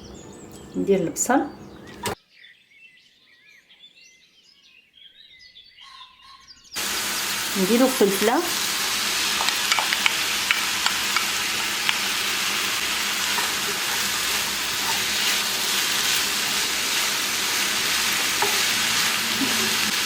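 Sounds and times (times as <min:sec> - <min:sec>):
vegetables sizzling in oil: 0:06.8 - 0:20.0.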